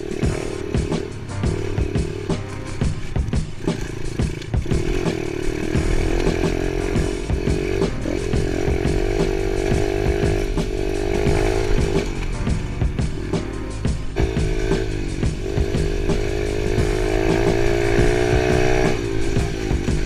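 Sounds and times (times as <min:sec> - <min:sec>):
dirt bike engine running: 0:00.0 - 0:13.3, 0:14.1 - 0:20.0.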